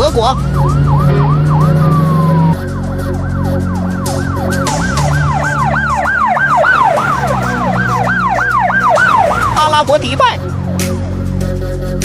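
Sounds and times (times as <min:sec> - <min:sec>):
police siren yelping: 0:00.0 - 0:11.5.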